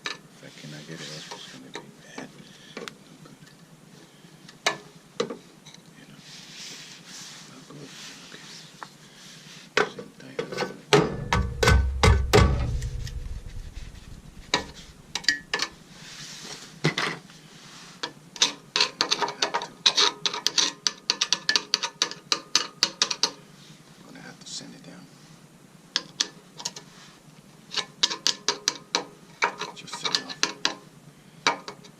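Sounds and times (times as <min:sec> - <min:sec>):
heavy thumps: 0:11.0 - 0:15.7.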